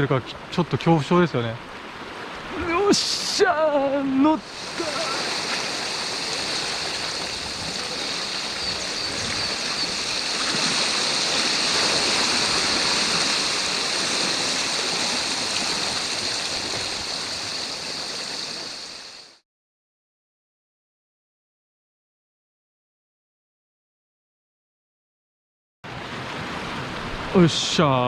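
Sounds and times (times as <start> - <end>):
surf on a rocky shore: 0.0 - 19.4.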